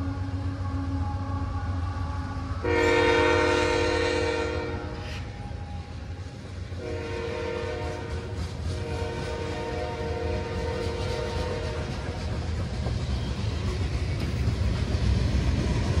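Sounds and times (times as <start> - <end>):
freight train rumbling past: 0.0 - 16.0
locomotive horn: 2.6 - 5.9, 6.8 - 12.0.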